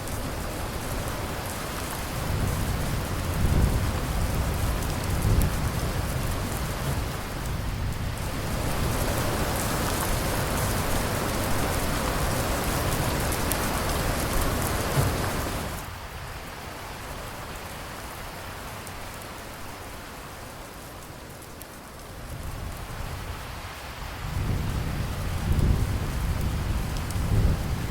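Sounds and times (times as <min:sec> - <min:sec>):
thunder rumbling: 0:00.0 - 0:15.9, 0:24.2 - 0:27.9
heavy rain hissing: 0:00.0 - 0:27.9.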